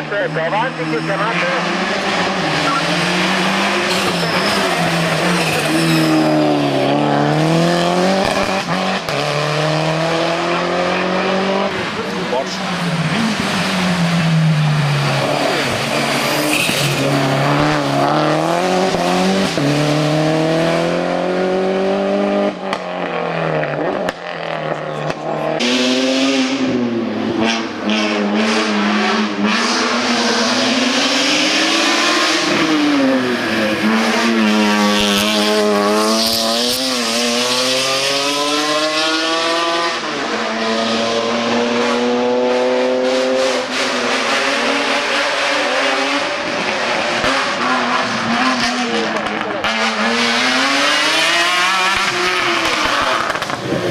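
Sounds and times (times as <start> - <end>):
race car engine accelerating: 0.0 - 53.9.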